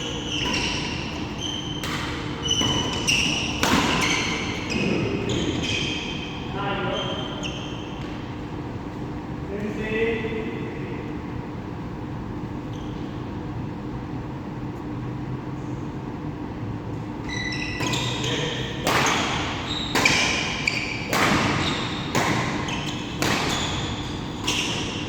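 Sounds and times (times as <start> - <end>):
shoe squeaks on court floor: 0.0 - 8.2, 12.7 - 13.3, 17.2 - 25.0.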